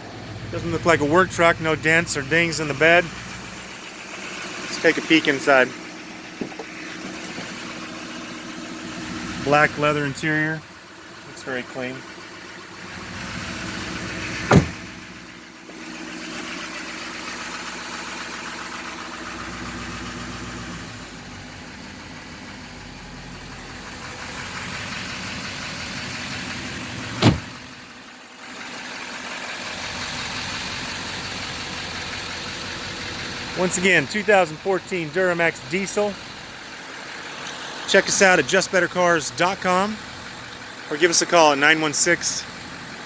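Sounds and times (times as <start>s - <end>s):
diesel engine idling: 0.0s - 43.0s
sharp knocks: 14.4s - 14.9s.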